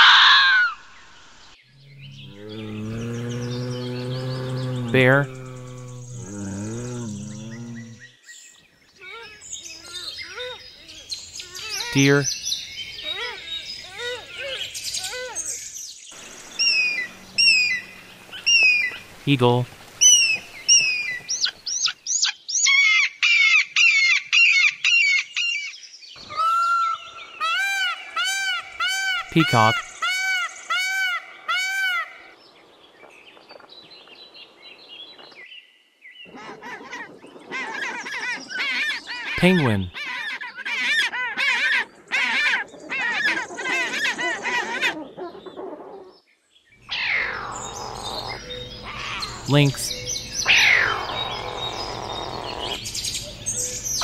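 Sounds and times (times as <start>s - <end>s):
eagle calling: 1.8s - 8.1s, 16.2s - 21.9s, 26.2s - 32.1s, 46.9s - 54.0s.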